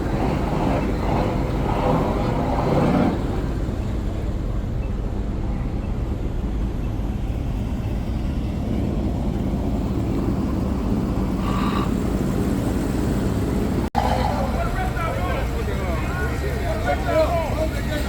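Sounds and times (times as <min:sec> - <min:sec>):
vehicle engine rumbling: 0:00.0 - 0:18.0
indistinct voices: 0:14.0 - 0:18.0.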